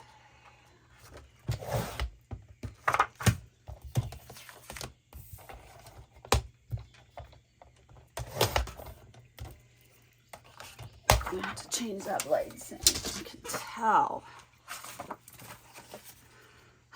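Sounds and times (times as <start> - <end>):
paper and card handled: 14.6 - 16.5.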